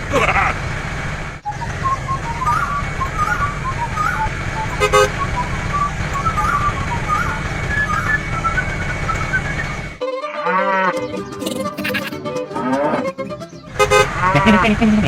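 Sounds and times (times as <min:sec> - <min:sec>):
low engine rumble: 0:00.0 - 0:10.0
tune of high hopping notes: 0:10.0 - 0:14.4.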